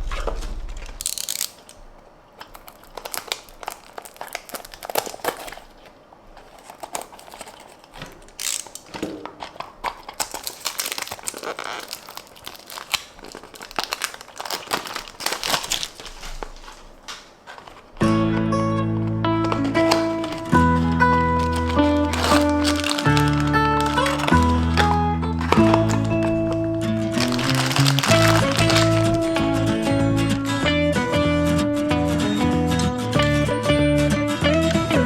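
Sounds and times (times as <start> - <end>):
packaging crinkling and tearing: 0.0 - 18.0, 19.4 - 29.9, 34.4 - 35.0
music: 18.0 - 35.0.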